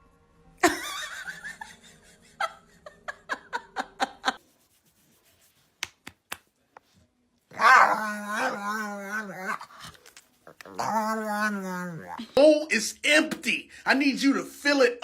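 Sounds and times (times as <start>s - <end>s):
person laughing: 0.6s - 4.4s.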